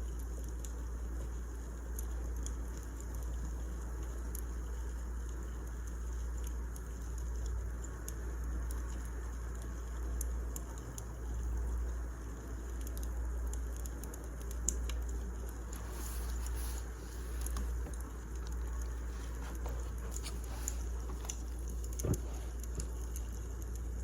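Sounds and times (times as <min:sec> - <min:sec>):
wood fire crackling: 0:12.2 - 0:24.0.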